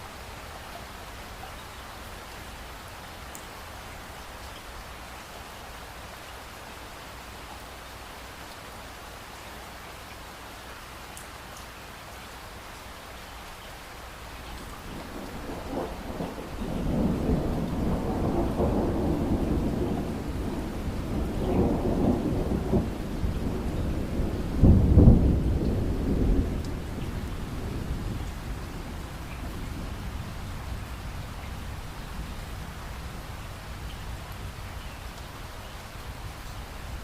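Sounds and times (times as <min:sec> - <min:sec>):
steady rain: 0:00.0 - 0:37.0
thunder rolling: 0:14.9 - 0:31.0.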